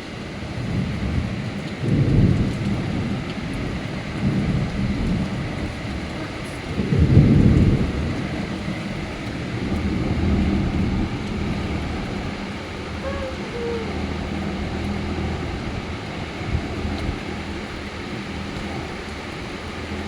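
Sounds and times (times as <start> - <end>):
steady rain: 0.0 - 20.0
thunder rumbling: 0.4 - 20.0.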